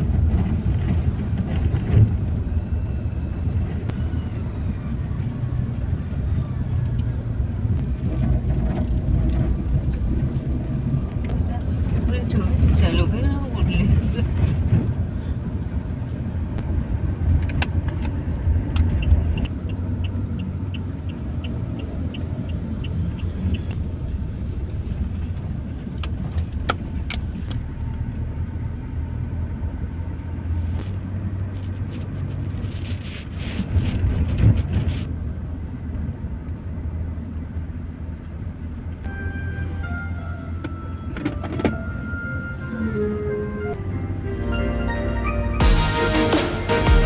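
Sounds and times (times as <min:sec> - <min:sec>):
car engine and road rumble: 0:00.0 - 0:47.0
loud rushing swell: 0:43.7 - 0:47.0.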